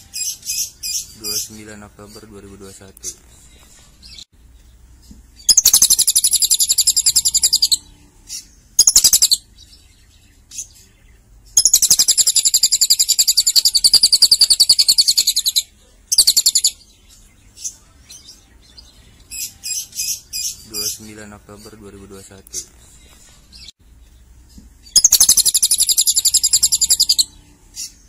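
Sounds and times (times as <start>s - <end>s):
bird singing fast trills: 5.4s - 23.7s, 24.8s - 28.0s.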